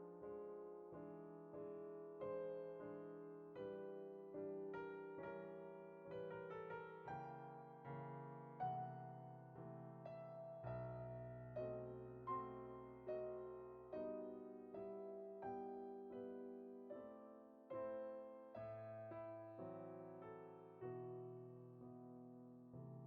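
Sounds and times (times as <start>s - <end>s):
slow gentle piano music: 0.0s - 23.0s.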